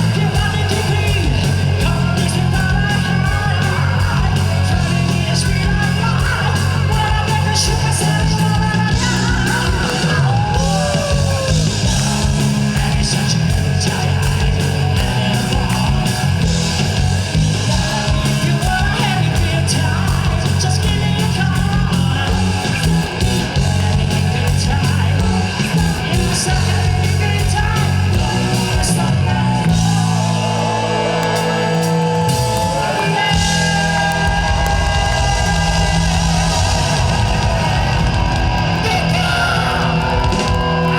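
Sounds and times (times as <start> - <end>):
person singing: 0.0 - 16.8, 17.6 - 40.9
bass and drums: 0.0 - 40.9
electric guitar bending notes: 0.0 - 40.9.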